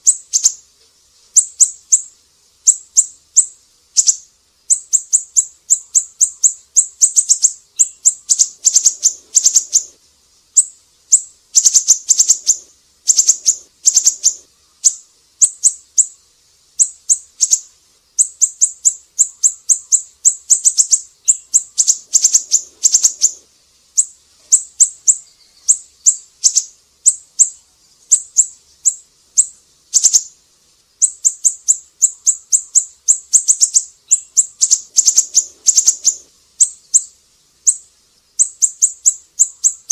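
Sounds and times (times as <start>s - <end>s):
bird singing high thin chirps: 0.0s - 0.6s, 1.3s - 16.2s, 16.8s - 30.4s, 31.0s - 39.9s.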